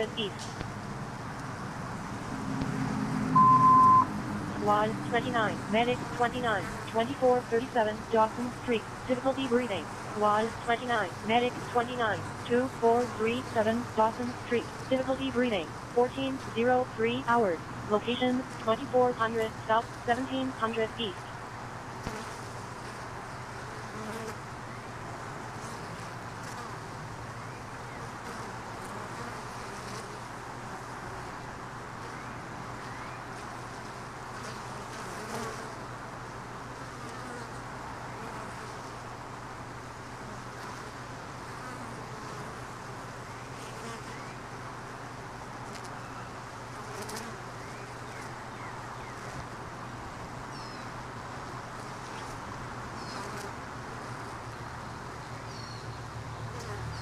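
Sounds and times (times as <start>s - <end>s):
bees buzzing: 2.1s - 21.3s
bird chirp: 55.3s - 56.0s.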